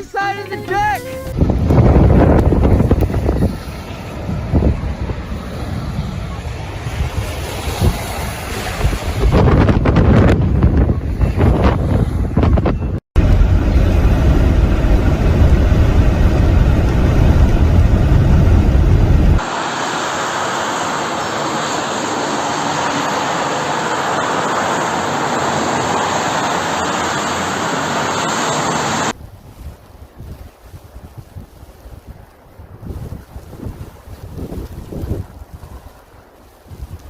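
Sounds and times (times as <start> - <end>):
wind rushing: 0.0 - 37.0
wind buffeting microphone: 0.8 - 19.4, 29.1 - 37.0.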